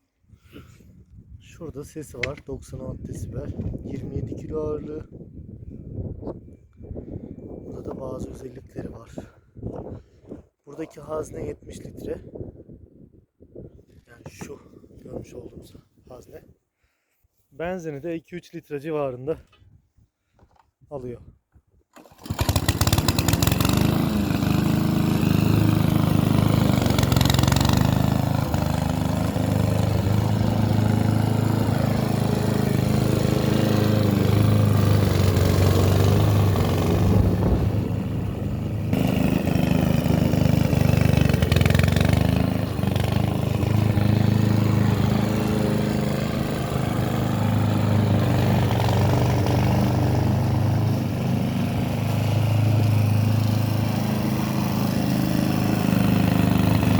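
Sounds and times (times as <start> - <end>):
lawn mower engine running: 21.9 - 56.9.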